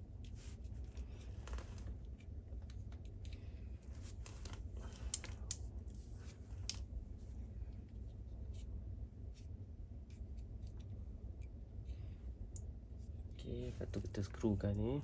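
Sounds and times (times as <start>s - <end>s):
low steady hum: 0.0s - 15.0s
plastic parts clicking and scraping: 2.6s - 5.7s.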